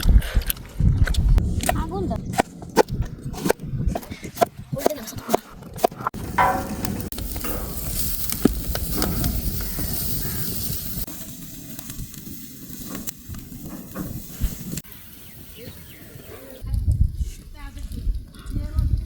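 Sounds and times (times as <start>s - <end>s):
chicken sizzling in hot oil: 7.1s - 16.0s.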